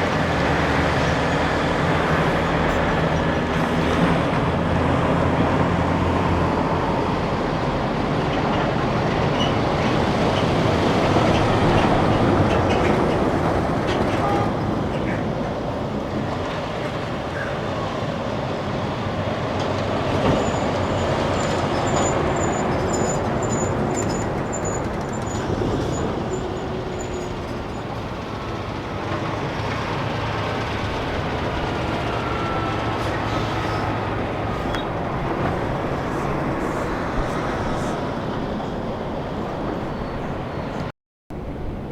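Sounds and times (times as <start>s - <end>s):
heavy vehicles passing: 0.0s - 41.9s.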